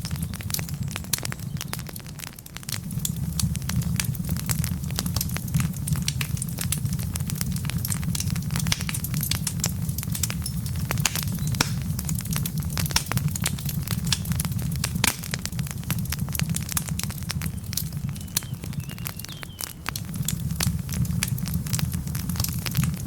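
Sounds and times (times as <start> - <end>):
fire low rumble: 0.0 - 23.0
logs crackling and popping: 0.0 - 23.0.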